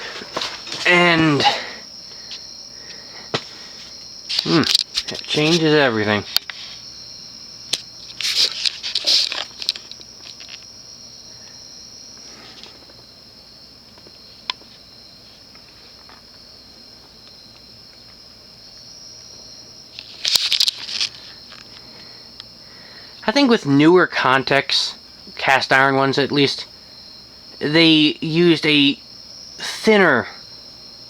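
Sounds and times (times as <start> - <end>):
high-pitched insect trill: 0.0 - 31.0
rustling crackling bursts: 3.2 - 6.8, 7.8 - 10.7, 19.9 - 21.9.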